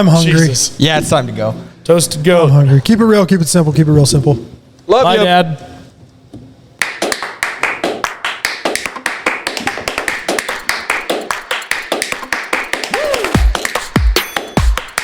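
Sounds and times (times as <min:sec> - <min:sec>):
rapid clicking percussion: 0:06.8 - 0:15.0.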